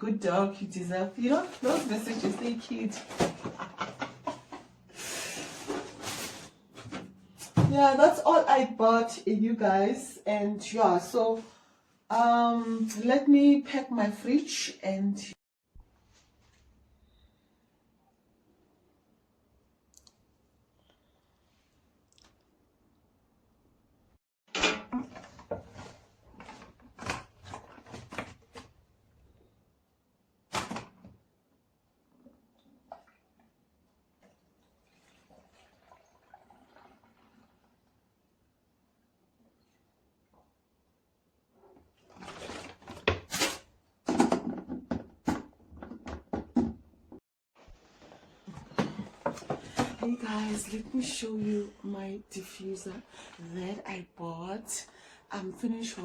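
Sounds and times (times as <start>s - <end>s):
groceries rustling and knocking: 1.1s - 7.9s, 24.9s - 29.3s, 41.8s - 51.7s
plastic packaging rustling: 1.2s - 3.6s, 25.2s - 28.8s, 42.0s - 43.7s
items clunking on fridge shelves: 1.2s - 8.0s, 42.0s - 47.2s, 48.1s - 51.7s.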